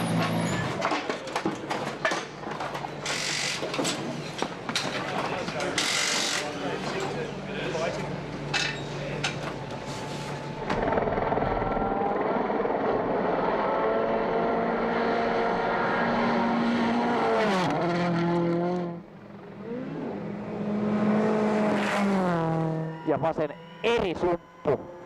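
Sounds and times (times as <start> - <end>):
rally car engine revving: 10.7 - 23.0.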